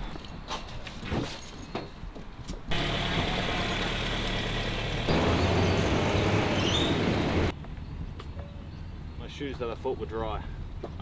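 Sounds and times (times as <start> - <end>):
car engine: 2.7 - 7.5
road noise: 2.7 - 7.6.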